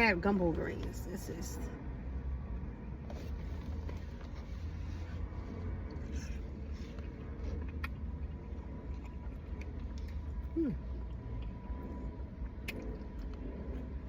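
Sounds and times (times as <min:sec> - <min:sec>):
steady low hum: 0:00.0 - 0:14.0
person chewing: 0:04.6 - 0:14.0
wet mouth clicks: 0:07.5 - 0:08.1, 0:12.6 - 0:13.4
voice humming: 0:10.5 - 0:10.9.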